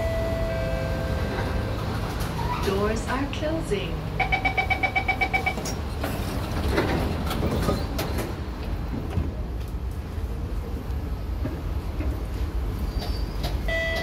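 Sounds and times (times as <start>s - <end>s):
train humming at platform: 0.0s - 14.0s
electronic door beeps: 4.2s - 5.7s, 13.7s - 14.0s.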